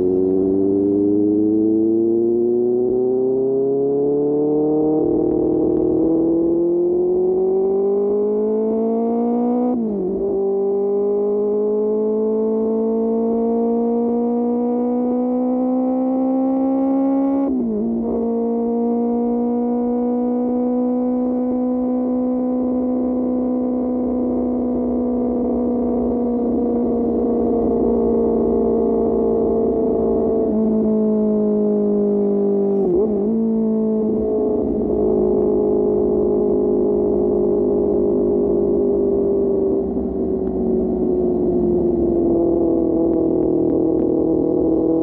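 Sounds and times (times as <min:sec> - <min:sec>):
motorcycle engine accelerating: 0:00.0 - 0:45.0.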